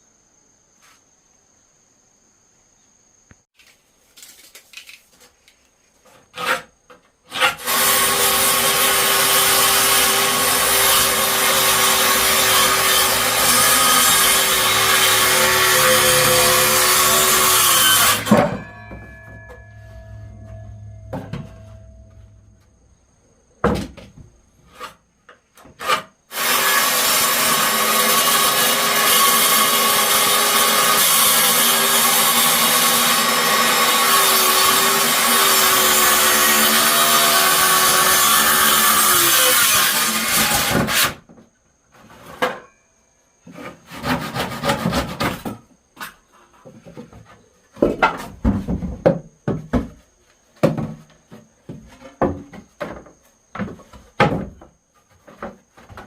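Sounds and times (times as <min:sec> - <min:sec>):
power tool cutting wood: 0:07.3 - 0:18.8, 0:26.3 - 0:41.2
handling knocks and clatters: 0:18.0 - 0:22.7.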